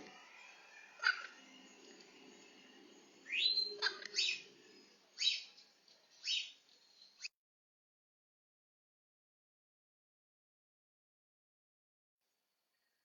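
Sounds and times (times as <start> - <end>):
parrots chirping and squeaking: 0.2 - 7.3.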